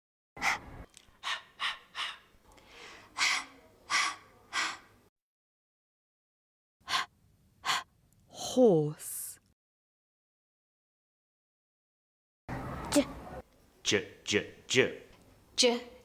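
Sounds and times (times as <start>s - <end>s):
person making breathy h sounds: 1.2s - 4.9s.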